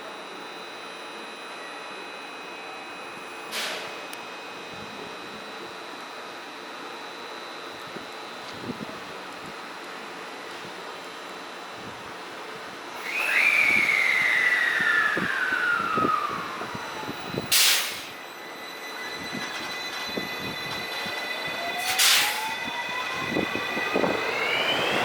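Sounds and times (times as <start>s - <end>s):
electric train motor whine: 0.0s - 25.0s
sharp air hiss: 17.5s - 18.2s, 21.9s - 22.4s.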